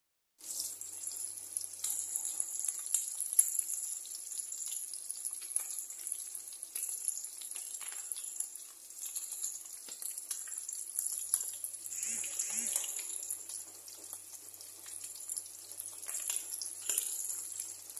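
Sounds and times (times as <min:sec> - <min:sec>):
fish frying in oil: 0:00.4 - 0:17.9
oil pops and crackles: 0:06.7 - 0:08.2.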